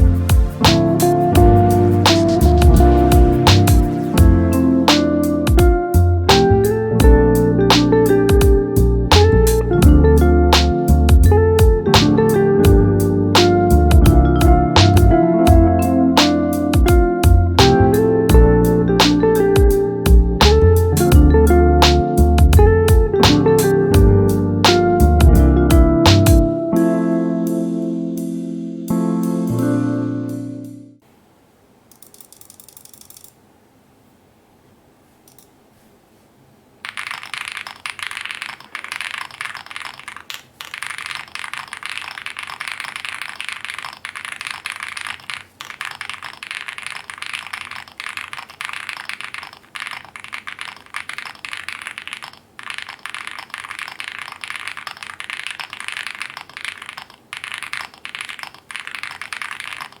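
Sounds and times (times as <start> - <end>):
mechanical keyboard typing: 36.8 - 60.0.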